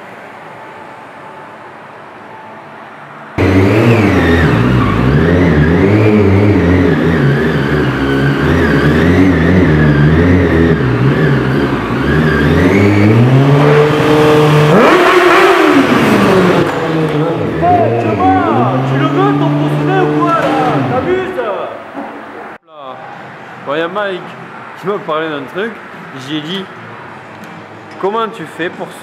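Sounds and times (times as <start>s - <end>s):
motorcycle engine revving hard: 3.4s - 21.2s.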